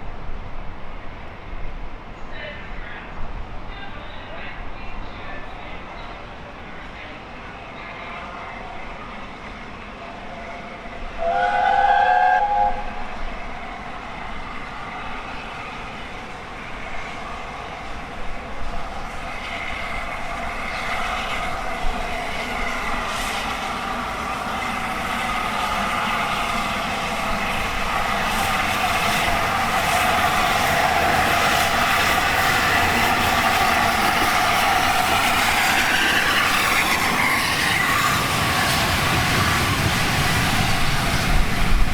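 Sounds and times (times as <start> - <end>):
steam train rumbling: 0.0 - 41.9
steam whistle blast: 11.2 - 13.1.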